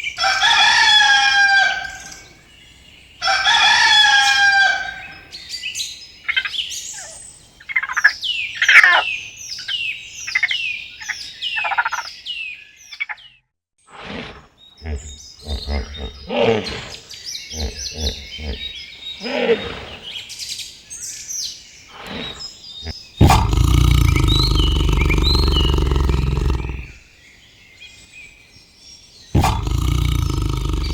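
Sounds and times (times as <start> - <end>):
animal calls: 13.9 - 20.2, 22.0 - 27.0, 29.4 - 30.9.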